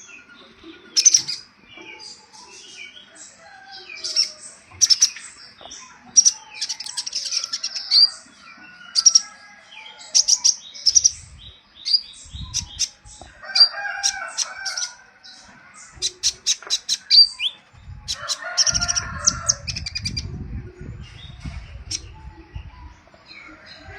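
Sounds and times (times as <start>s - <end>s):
birds chirping in sharp bursts: 0.0s - 20.4s
lower warbling bird calls: 10.0s - 20.5s
low rumbling: 17.7s - 23.9s.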